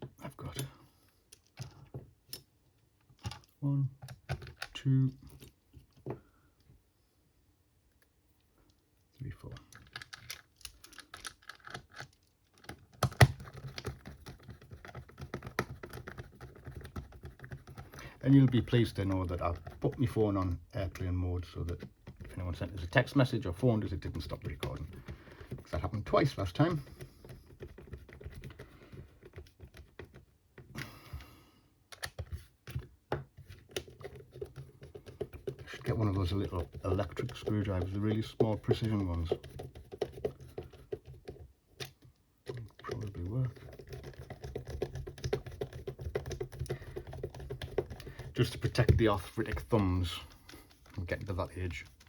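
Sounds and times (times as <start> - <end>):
plastic and metal parts clicking: 9.5 - 21.0, 31.9 - 52.0.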